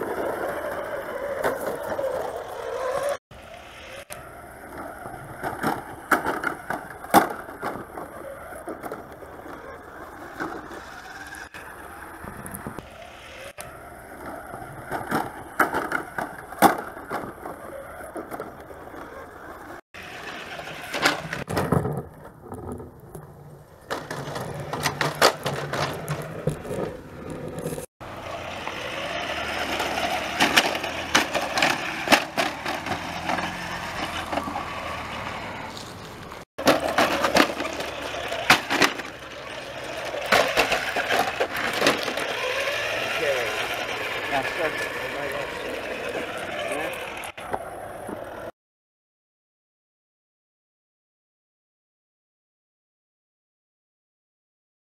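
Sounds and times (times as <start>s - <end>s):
electric motors running: 0.0s - 15.6s, 16.4s - 21.5s, 24.0s - 48.5s
toy truck wheels rolling and bumping: 0.0s - 48.5s
knocks and clatters: 23.9s - 27.9s, 29.6s - 34.8s, 35.9s - 42.8s.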